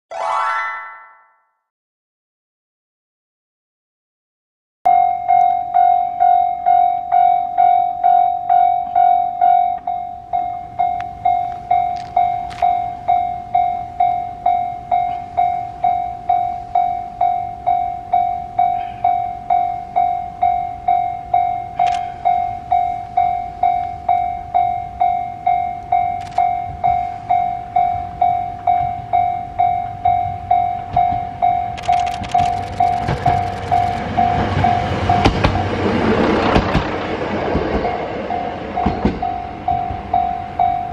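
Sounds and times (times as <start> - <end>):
level crossing alarm dinging: 4.9 - 35.5
diesel railcar rumbling: 4.9 - 40.9.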